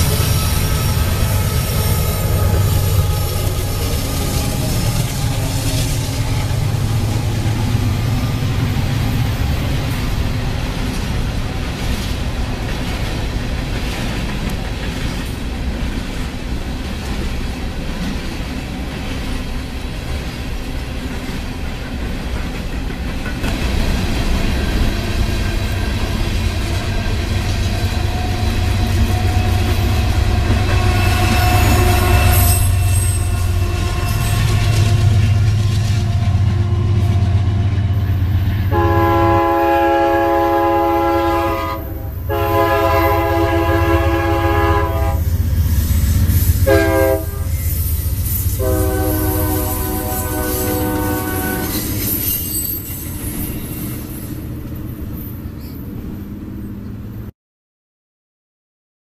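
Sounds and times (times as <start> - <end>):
train cars rumbling and clattering: 0.0 - 57.3
locomotive horn chord: 28.1 - 45.3, 46.6 - 47.6, 48.6 - 51.9.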